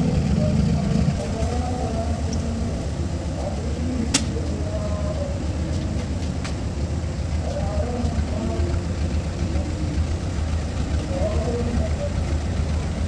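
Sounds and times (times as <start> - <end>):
diesel locomotive rumbling: 0.0 - 13.0
faint voices: 0.0 - 13.0
sharp click: 4.1 - 4.4.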